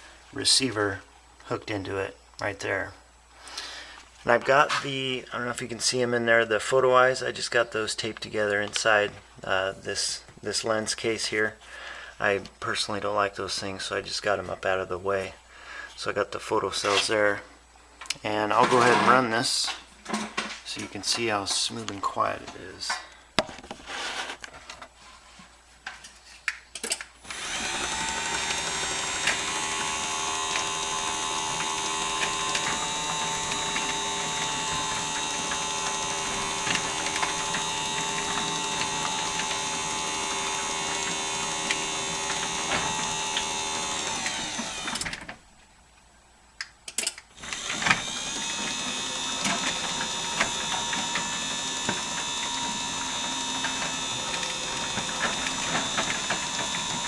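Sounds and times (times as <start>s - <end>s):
garage door opener whirring: 27.2s - 45.3s, 47.4s - 57.0s.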